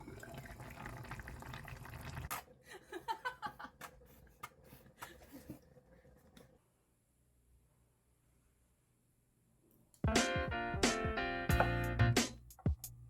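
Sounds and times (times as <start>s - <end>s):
water running from tap: 0.0s - 2.4s
water dripping: 0.0s - 2.5s.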